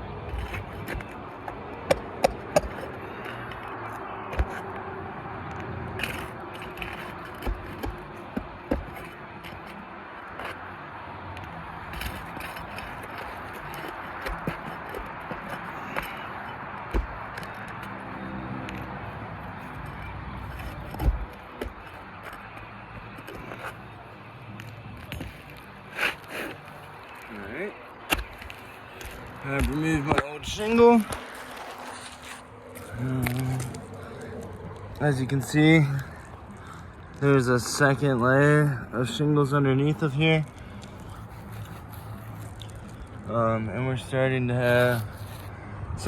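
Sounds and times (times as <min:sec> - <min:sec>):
sharp taps and clicks from roofing: 0:00.2 - 0:10.6, 0:11.4 - 0:18.0, 0:18.7 - 0:23.8, 0:28.0 - 0:32.9.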